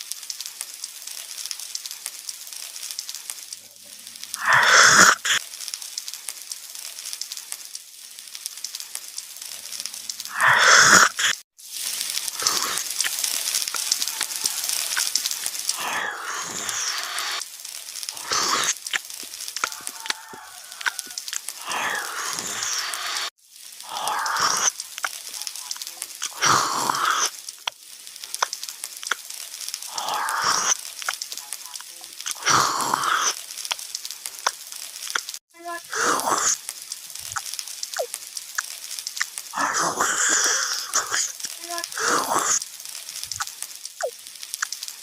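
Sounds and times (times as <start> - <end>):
crunchy chewing: 12.0 - 35.4.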